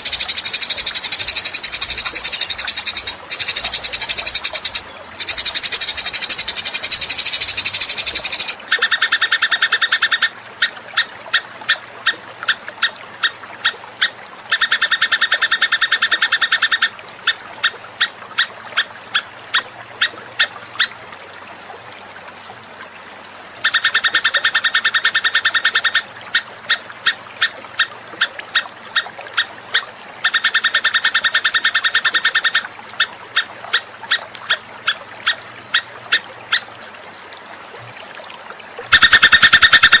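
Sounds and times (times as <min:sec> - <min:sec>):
bird rattling trill: 0:00.0 - 0:08.6, 0:38.9 - 0:40.0.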